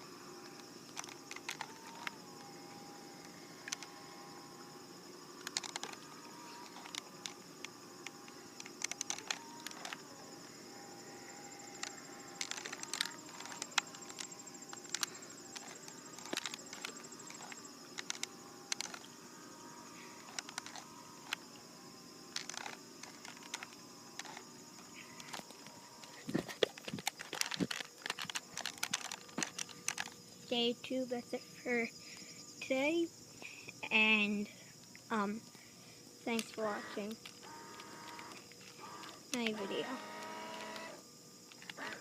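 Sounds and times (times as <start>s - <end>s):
crickets chirring: 0.0s - 42.0s
faint steady hum: 0.0s - 42.0s
sharp clicks: 0.4s - 2.5s, 3.2s - 4.0s, 5.4s - 10.0s, 11.6s - 19.1s, 20.2s - 21.4s, 22.3s - 24.4s, 25.0s - 30.2s, 36.4s - 42.0s.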